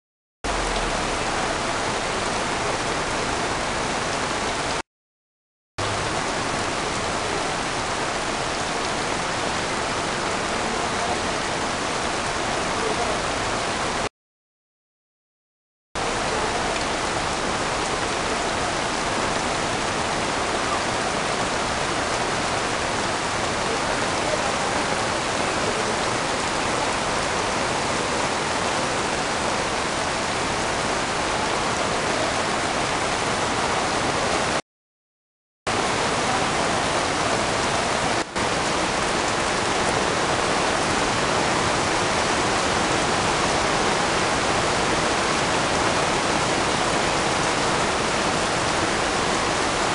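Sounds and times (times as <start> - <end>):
heavy rain hissing: 0.5 - 4.3, 35.7 - 49.9.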